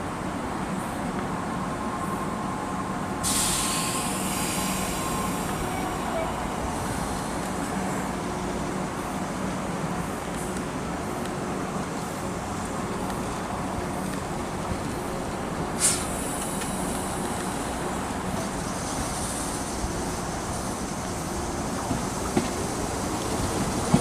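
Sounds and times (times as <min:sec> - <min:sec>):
train rumbling past: 0:00.0 - 0:24.0
high hiss: 0:03.2 - 0:10.7, 0:14.8 - 0:24.0.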